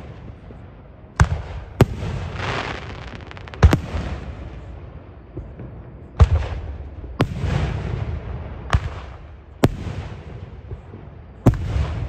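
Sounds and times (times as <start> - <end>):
firework bangs: 0.0 - 12.0.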